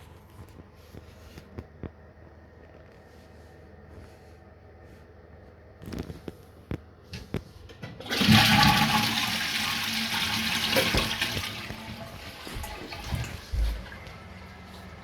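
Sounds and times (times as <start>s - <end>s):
toilet flushing: 7.7s - 15.0s.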